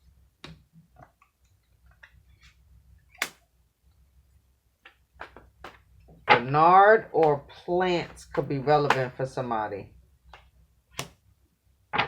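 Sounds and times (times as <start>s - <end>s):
card snap: 3.2s - 3.4s, 11.0s - 11.2s
cards clicking and tapping: 10.3s - 11.2s.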